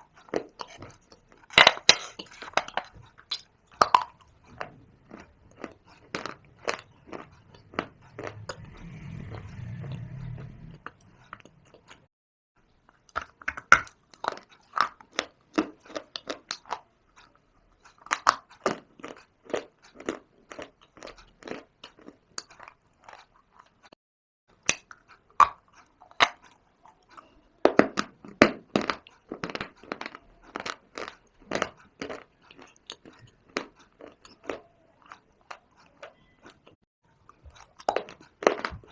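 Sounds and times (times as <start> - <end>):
chewing crunchy stone: 0.0 - 12.1, 12.9 - 38.9
low muffled rumble: 4.3 - 11.9.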